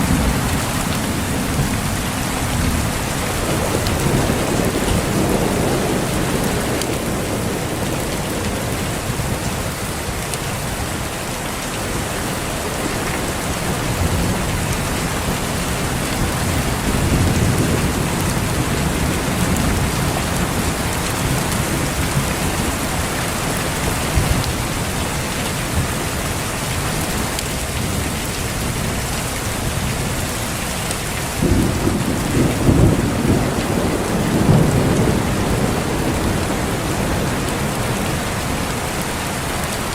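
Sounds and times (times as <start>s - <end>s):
rolling thunder: 0.0s - 9.8s, 12.0s - 24.9s, 31.4s - 39.0s
heavy rain: 0.0s - 39.9s.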